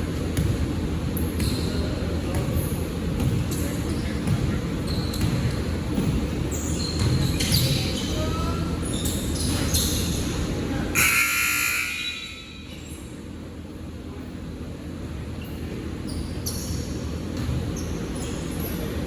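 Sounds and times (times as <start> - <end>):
basketball bouncing: 0.3 - 1.6, 2.3 - 2.6, 3.2 - 3.6, 4.2 - 6.3, 17.4 - 17.8
shoe squeaks on court: 1.3 - 1.9, 3.5 - 10.4, 15.4 - 18.9
loud buzzer tone: 11.0 - 12.6.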